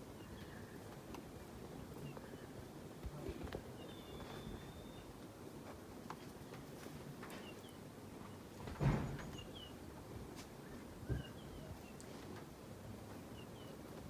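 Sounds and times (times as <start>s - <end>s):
small bird chirping: 3.8s - 5.1s.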